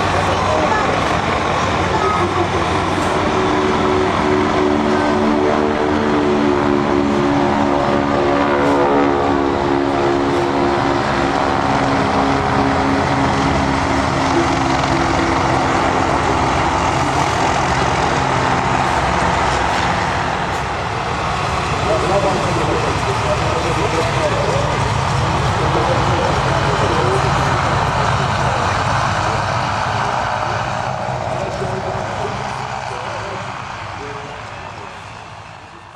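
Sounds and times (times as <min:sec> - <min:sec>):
propeller aircraft engine droning: 0:00.0 - 0:35.9.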